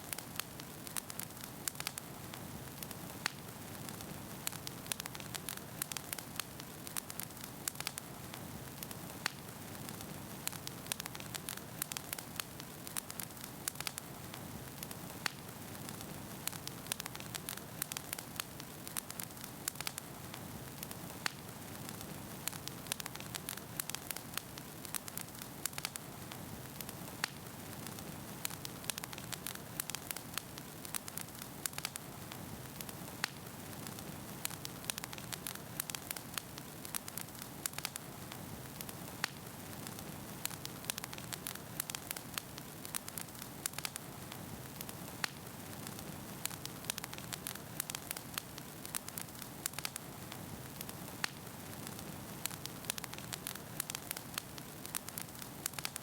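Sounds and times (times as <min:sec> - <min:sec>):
logs crackling and popping: 0:00.0 - 0:56.0
wood fire burning: 0:00.0 - 0:56.0.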